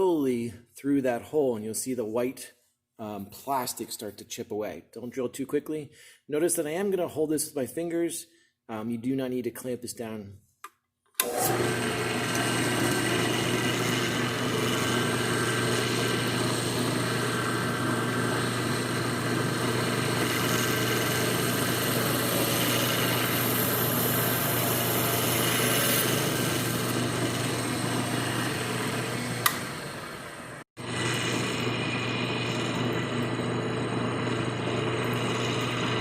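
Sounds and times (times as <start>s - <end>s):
drill click: 10.6s - 30.4s
electric drill boring plastic: 11.2s - 36.0s.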